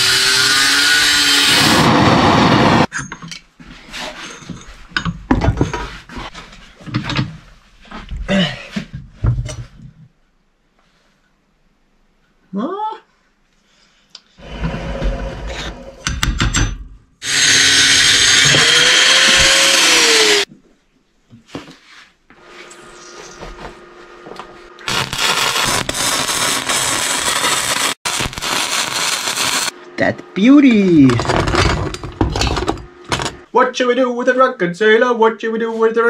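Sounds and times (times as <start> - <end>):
power tools working steel pipe: 0.0 - 2.9, 14.4 - 16.1, 17.2 - 20.5, 24.7 - 29.7.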